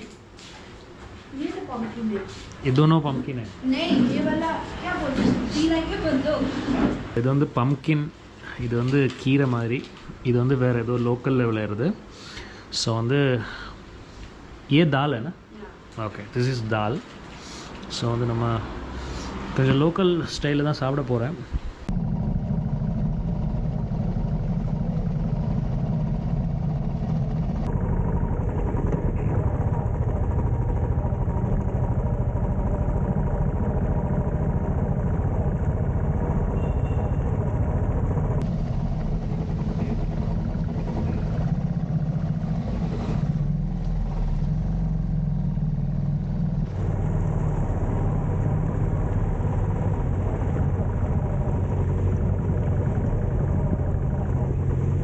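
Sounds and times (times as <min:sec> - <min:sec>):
road and wind noise: 0:17.2 - 0:27.7, 0:28.5 - 0:55.0
motorcycle engine running: 0:21.9 - 0:55.0.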